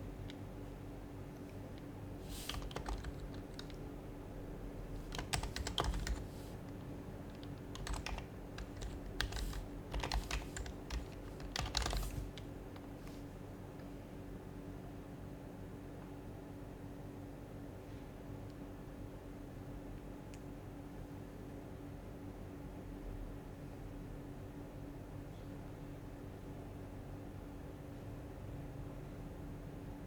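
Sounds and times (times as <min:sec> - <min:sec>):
faint steady hum: 0:00.0 - 0:30.0
keyboard typing soft clicks: 0:01.4 - 0:03.8, 0:05.0 - 0:13.0.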